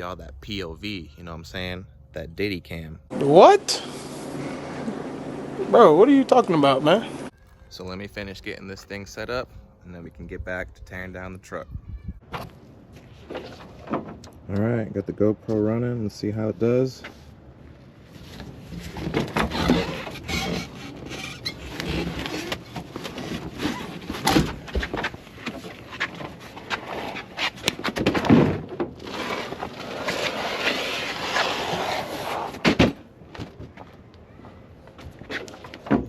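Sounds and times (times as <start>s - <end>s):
scraping: 18.1s - 33.8s.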